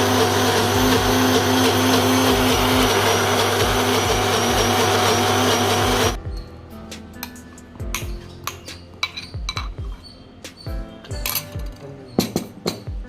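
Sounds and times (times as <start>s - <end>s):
mixer grinder running: 0.0s - 6.2s.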